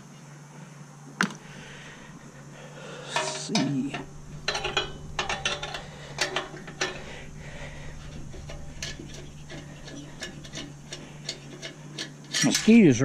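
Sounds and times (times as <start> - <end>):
steady low hum: 0.0 - 13.0
metallic clinks of tools and parts: 3.1 - 13.0.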